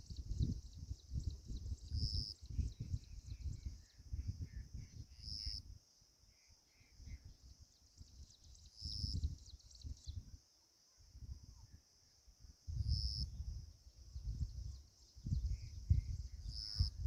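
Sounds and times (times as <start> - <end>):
insect chorus drone: 0.0 - 17.0.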